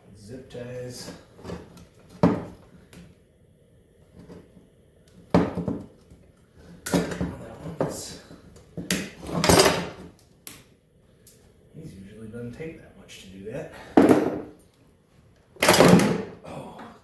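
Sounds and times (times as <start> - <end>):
hand tools clattering: 9.3 - 10.0.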